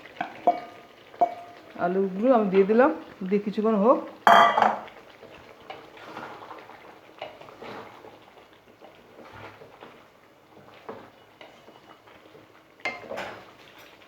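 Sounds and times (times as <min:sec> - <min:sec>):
spoon stirring food in a pan: 0:00.0 - 0:03.3, 0:04.0 - 0:14.0
scrapes and knocks against pan: 0:00.2 - 0:01.6, 0:04.3 - 0:04.9.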